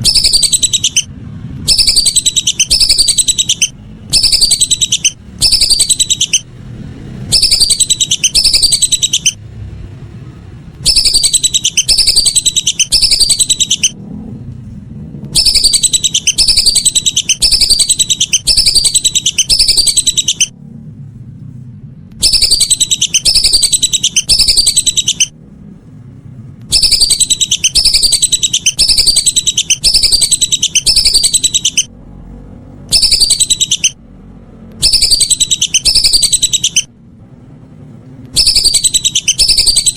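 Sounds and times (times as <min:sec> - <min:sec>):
duck whistling calls: 0:00.0 - 0:06.5, 0:07.3 - 0:09.4, 0:10.8 - 0:14.0, 0:15.3 - 0:20.5, 0:22.2 - 0:25.3, 0:26.7 - 0:31.9, 0:32.9 - 0:34.0, 0:34.8 - 0:36.9, 0:38.4 - 0:39.9.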